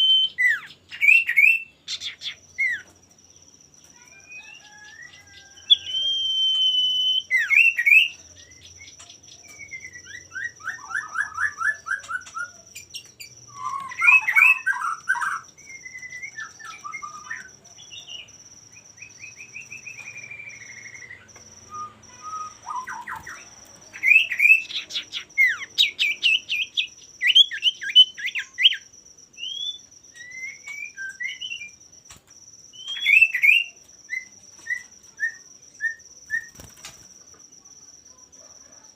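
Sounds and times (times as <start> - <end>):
bird singing whistles and trills: 0.0 - 3.0, 3.8 - 36.9.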